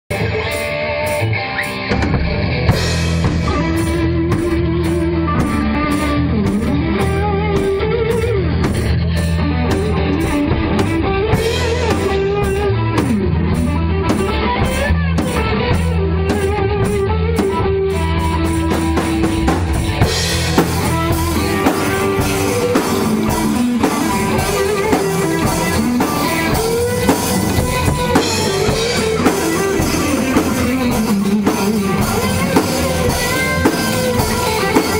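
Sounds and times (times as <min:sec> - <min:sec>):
rock band playing: 0:00.1 - 0:34.9.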